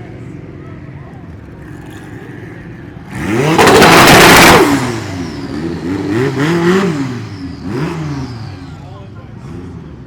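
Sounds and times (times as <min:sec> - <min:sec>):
car engine revving hard: 0:03.1 - 0:08.5.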